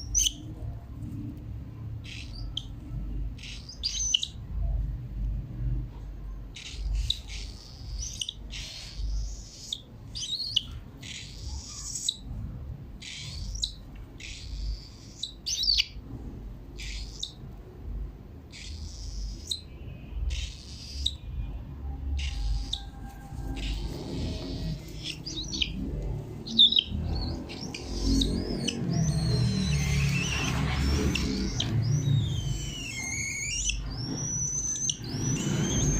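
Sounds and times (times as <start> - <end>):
cockatiels chirping harshly: 0.0 - 0.5, 2.0 - 2.8, 3.4 - 4.4, 6.6 - 12.2, 13.0 - 16.0, 16.8 - 17.4, 18.5 - 19.7, 20.3 - 21.2, 22.2 - 35.9.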